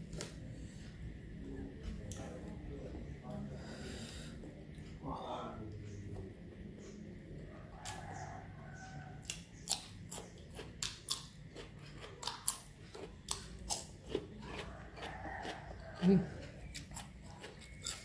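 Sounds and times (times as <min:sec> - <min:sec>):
crunchy cucumber chewing: 0:09.2 - 0:18.0.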